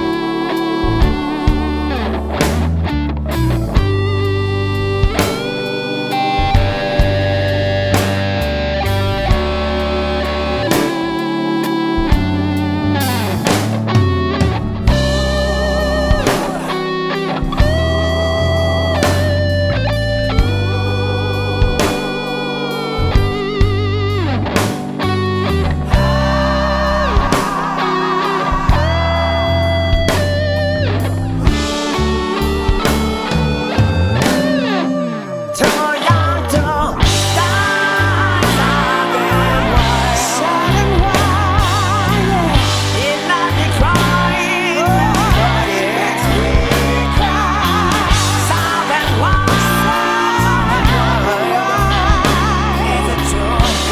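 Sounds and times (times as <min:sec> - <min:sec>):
bass guitar: 0:00.0 - 0:53.9
drums: 0:00.0 - 0:53.9
electric guitar lead notes: 0:00.0 - 0:53.9
rock band playing: 0:00.0 - 0:53.9.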